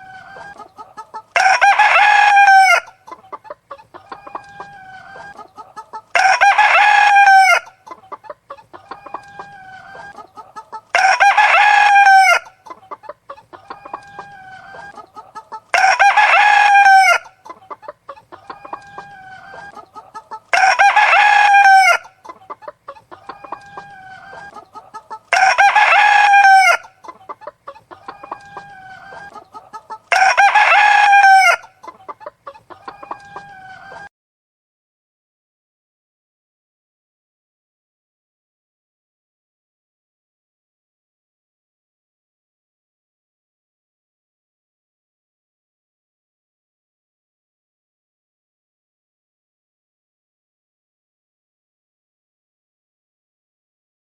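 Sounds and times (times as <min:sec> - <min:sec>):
chicken clucking: 0:00.0 - 0:34.1
rooster crowing: 0:01.3 - 0:03.0, 0:06.1 - 0:07.7, 0:10.9 - 0:12.5, 0:15.7 - 0:17.4, 0:18.4 - 0:22.2, 0:23.2 - 0:26.9, 0:30.1 - 0:31.8.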